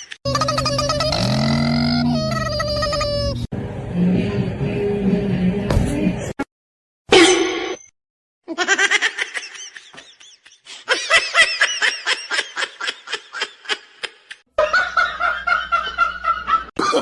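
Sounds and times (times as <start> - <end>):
high-pitched laughter: 0.0 - 3.5
held voiced sound: 0.3 - 3.5.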